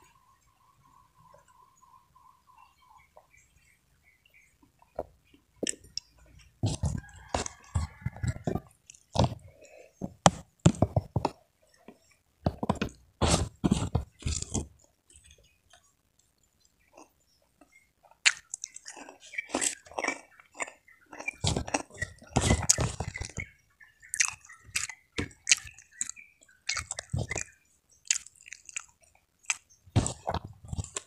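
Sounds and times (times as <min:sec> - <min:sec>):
person chewing crunchy food: 0:05.6 - 0:11.4, 0:12.5 - 0:15.2, 0:18.1 - 0:31.0.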